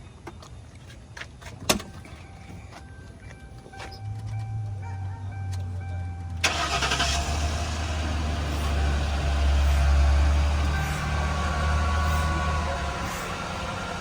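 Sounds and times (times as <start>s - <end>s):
car engine starting and running: 5.5s - 14.0s.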